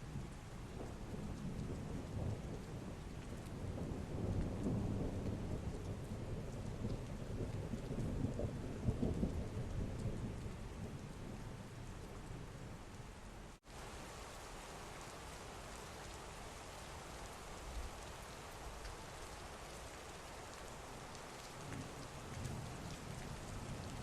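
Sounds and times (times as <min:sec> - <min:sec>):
heavy rain: 0:00.0 - 0:24.0
thunder rumbling: 0:21.5 - 0:24.0.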